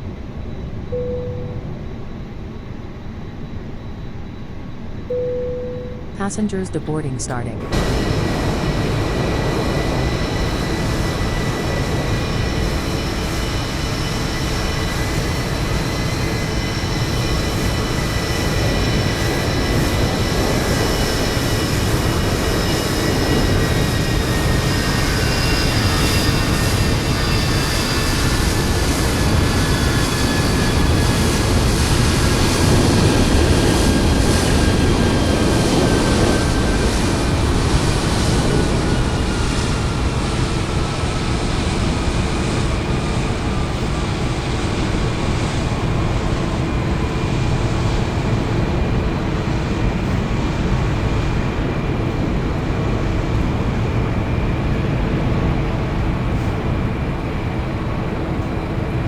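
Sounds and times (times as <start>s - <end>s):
jet aircraft rumble: 0.0s - 59.0s.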